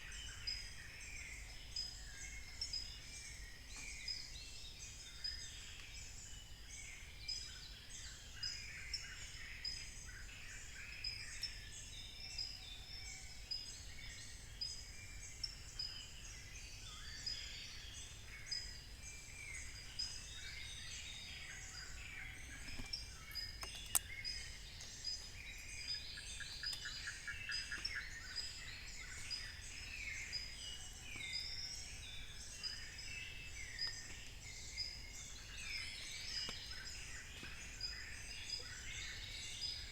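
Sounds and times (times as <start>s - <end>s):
birds calling: 19.6s - 39.9s
sharp click: 22.8s - 24.1s.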